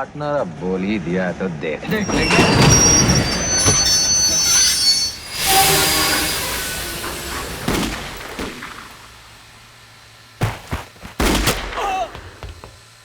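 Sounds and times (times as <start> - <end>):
train noise: 0.1 - 11.2
gunshots: 10.5 - 12.4.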